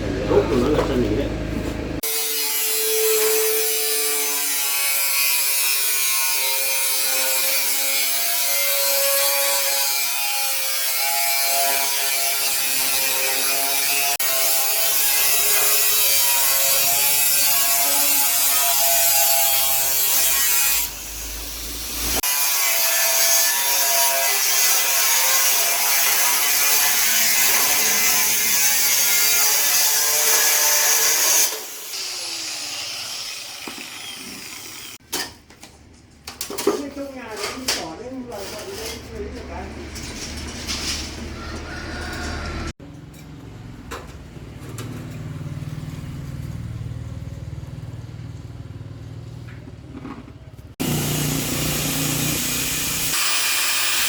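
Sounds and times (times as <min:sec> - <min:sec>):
tool buzzing on metal: 0:02.0 - 0:35.0, 0:50.8 - 0:54.0.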